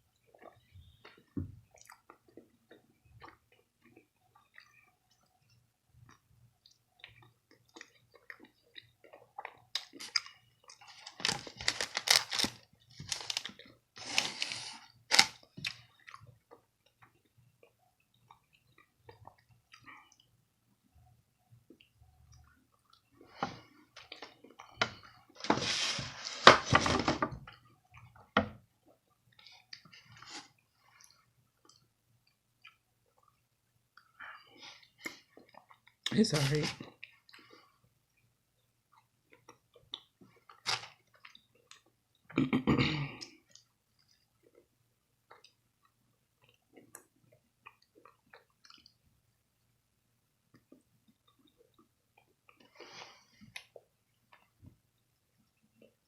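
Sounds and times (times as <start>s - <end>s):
person chewing: 0.2s - 20.3s, 43.2s - 49.0s.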